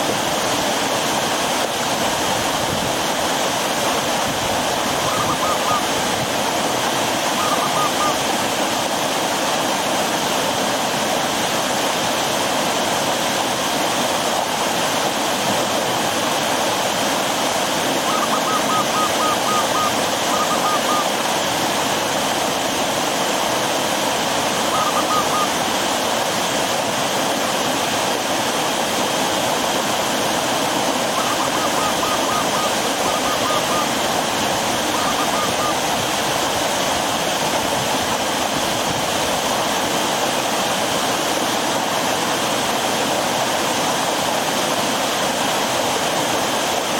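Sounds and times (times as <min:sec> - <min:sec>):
water rushing over rocks: 0:00.0 - 0:46.9
bird call of rapid notes: 0:05.0 - 0:05.9, 0:07.2 - 0:08.2, 0:18.0 - 0:21.2, 0:24.7 - 0:25.6, 0:31.1 - 0:34.1, 0:34.8 - 0:35.9.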